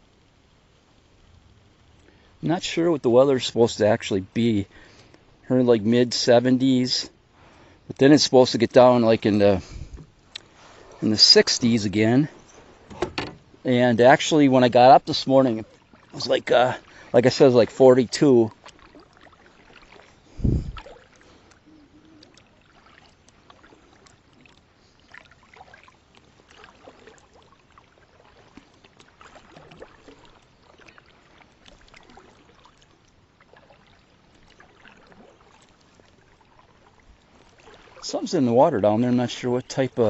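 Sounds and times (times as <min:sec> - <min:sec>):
water lapping around kayak: 0:00.0 - 0:40.0
dull low thump: 0:12.8 - 0:13.5.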